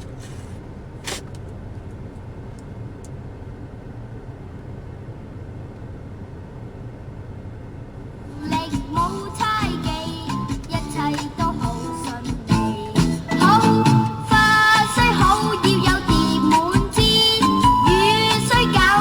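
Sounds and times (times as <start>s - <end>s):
car cabin rumble: 8.2s - 19.0s.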